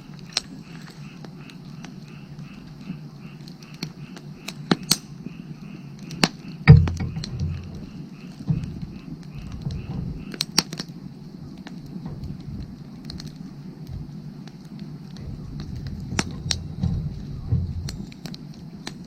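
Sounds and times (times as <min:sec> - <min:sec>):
frogs calling: 0:00.0 - 0:19.0
wood fire crackling: 0:00.0 - 0:19.0
low thump: 0:06.7 - 0:07.9, 0:15.2 - 0:18.1.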